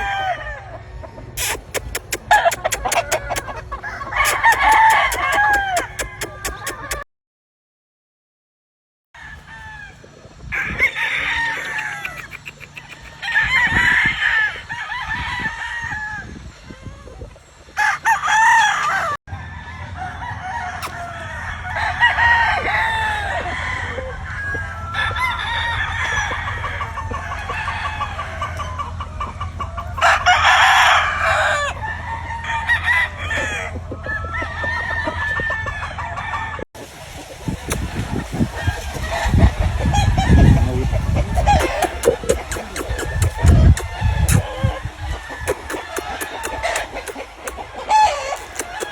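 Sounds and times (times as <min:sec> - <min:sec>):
hens clucking: 0:00.0 - 0:07.0, 0:10.6 - 0:13.8, 0:22.1 - 0:48.9
roosters crowing: 0:00.0 - 0:07.0, 0:09.2 - 0:48.9.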